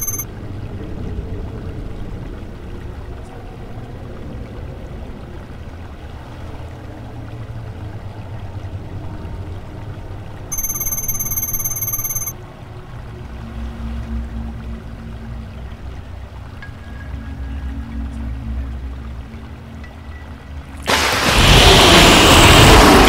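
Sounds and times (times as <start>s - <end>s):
high-pitched electronic buzzing tone: 0.0s - 0.2s, 10.5s - 12.3s
low rumbling drone: 12.6s - 20.7s.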